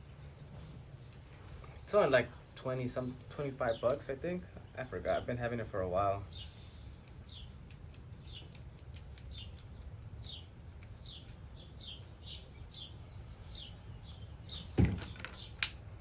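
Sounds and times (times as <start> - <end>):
bird chirping: 0.0 - 5.4, 6.1 - 16.0.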